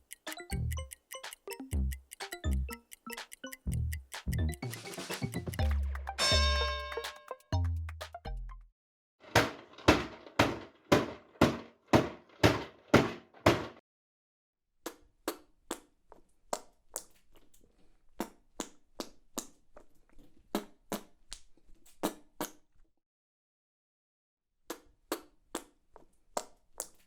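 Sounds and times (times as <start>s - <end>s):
knocks: 9.3s - 13.8s.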